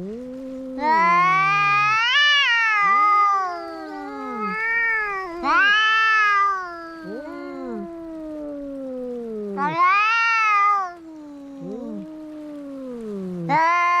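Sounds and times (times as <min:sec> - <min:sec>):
cats yowling in a fight: 0:00.0 - 0:14.0.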